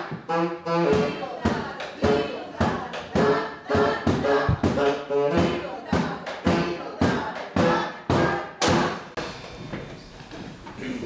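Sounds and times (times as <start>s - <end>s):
thumping drum beats: 0.0s - 11.0s
live band with horns: 0.1s - 1.2s, 3.8s - 5.6s.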